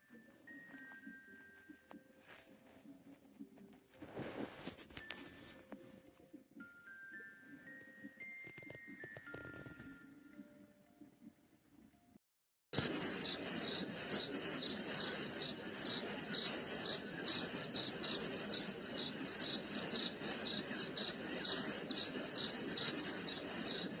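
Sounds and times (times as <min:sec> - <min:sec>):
cricket chirping: 0:12.8 - 0:24.0
steady hiss: 0:12.8 - 0:24.0.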